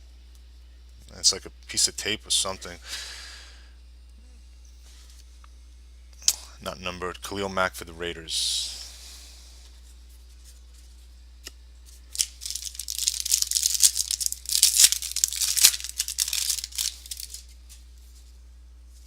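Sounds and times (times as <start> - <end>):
foil wrapper tearing and crinkling: 12.0 - 17.8.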